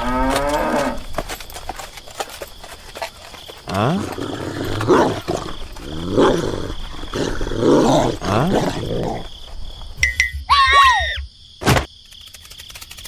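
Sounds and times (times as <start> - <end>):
large dog growling and barking: 3.7 - 9.3.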